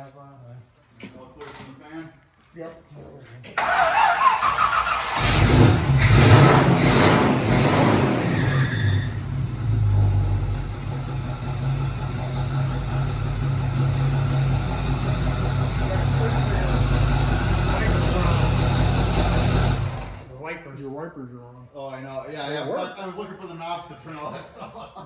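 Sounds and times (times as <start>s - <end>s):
car engine revving and idling: 3.6s - 20.3s.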